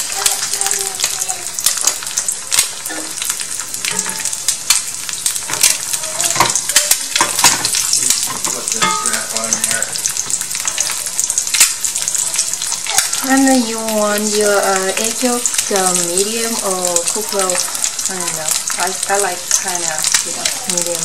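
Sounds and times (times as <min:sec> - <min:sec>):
spatula scraping a skillet: 0:00.0 - 0:13.4, 0:16.9 - 0:18.9
oil popping: 0:00.0 - 0:21.0
oil sizzling: 0:00.0 - 0:21.0.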